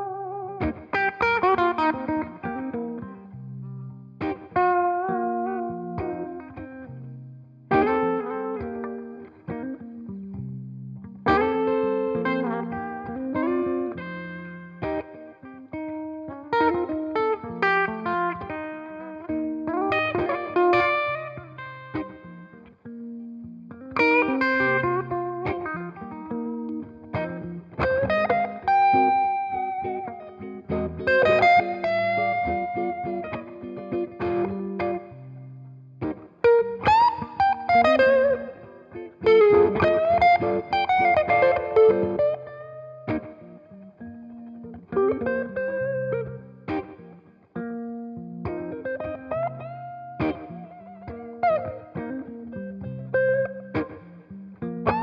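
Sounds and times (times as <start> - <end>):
electric guitar notes and chords: 0.0 - 55.0.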